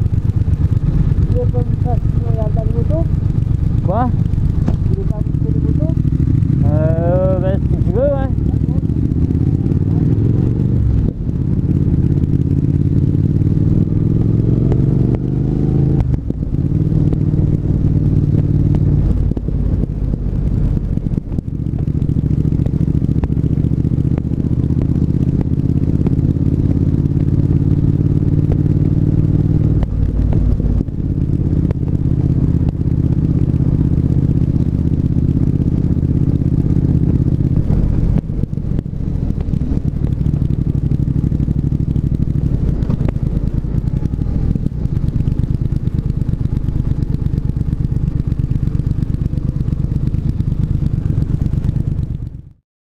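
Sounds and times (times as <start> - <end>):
motorcycle engine running: 0.0 - 52.6.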